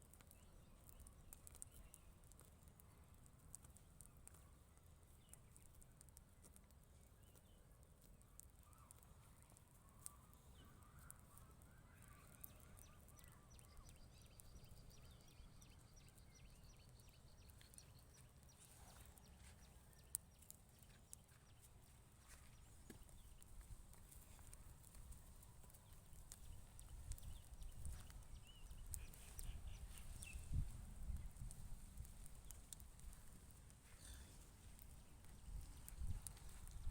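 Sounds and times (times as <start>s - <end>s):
distant bird calls: 8.6s - 23.6s.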